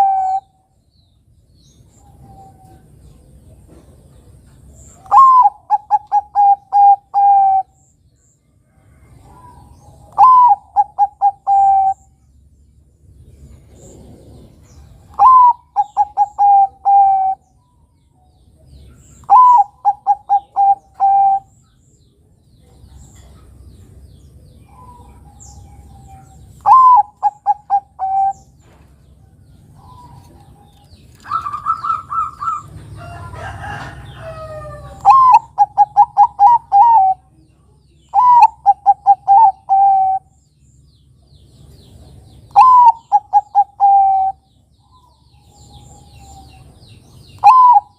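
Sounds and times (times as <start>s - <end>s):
dove cooing: 0.0s - 0.5s, 5.0s - 7.8s, 9.2s - 12.1s, 13.7s - 17.4s, 19.2s - 21.6s, 24.6s - 28.8s, 29.7s - 37.4s, 38.1s - 40.3s, 42.5s - 46.7s, 47.4s - 47.9s.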